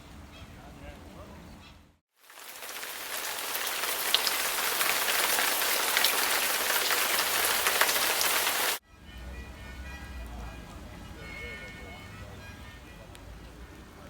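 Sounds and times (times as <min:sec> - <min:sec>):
heavy rain falling: 0:02.2 - 0:08.8
raindrops ticking near microphone: 0:02.2 - 0:08.8.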